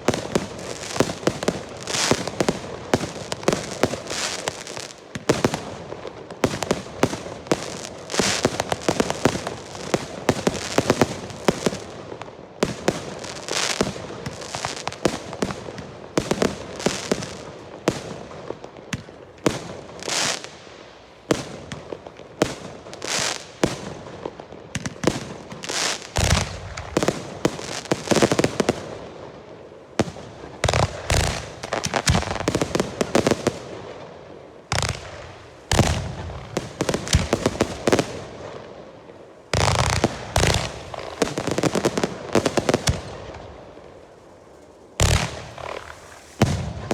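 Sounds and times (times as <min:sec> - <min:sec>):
deep firework booms: 0:39.6 - 0:43.4, 0:45.0 - 0:46.9
rockets cracking and banging: 0:39.6 - 0:43.7, 0:45.0 - 0:46.9.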